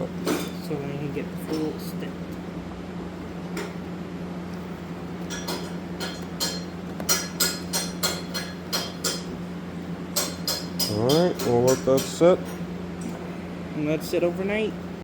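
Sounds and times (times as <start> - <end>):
steady low hum: 0.0 - 15.0
ringing metallic clicks and taps: 10.2 - 12.6.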